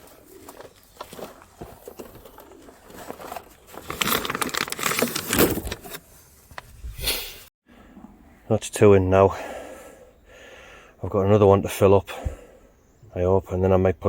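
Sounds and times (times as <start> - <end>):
scrap cable clattering and rustling: 1.1 - 6.0.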